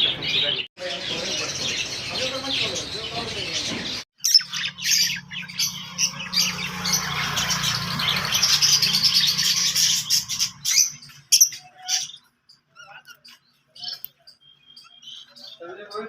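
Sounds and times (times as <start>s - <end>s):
birds chirping and squawking: 0.0s - 16.0s.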